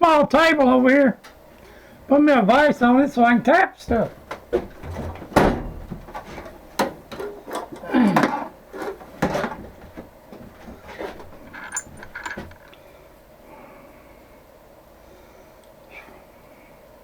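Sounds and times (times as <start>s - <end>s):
metal tools clicking and knocking: 4.3s - 10.0s, 10.7s - 12.8s.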